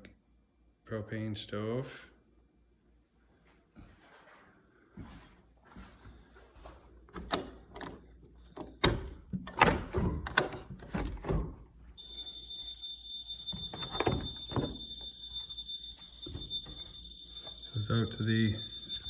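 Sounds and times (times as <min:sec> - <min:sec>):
door opening: 0:07.1 - 0:11.8, 0:13.4 - 0:19.0
door knocks and clatters: 0:08.8 - 0:11.7, 0:13.5 - 0:14.9
high-pitched electronic tone: 0:12.0 - 0:19.0.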